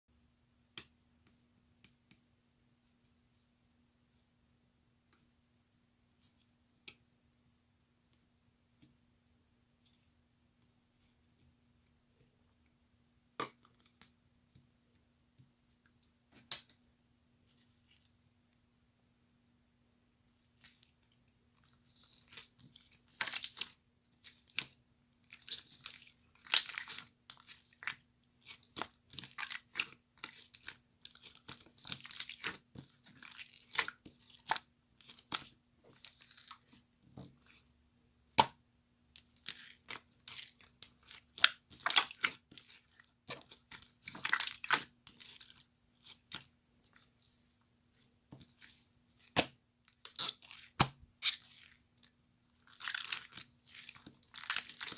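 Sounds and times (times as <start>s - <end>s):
crunching and crackling: 21.6s - 37.6s, 48.3s - 54.9s.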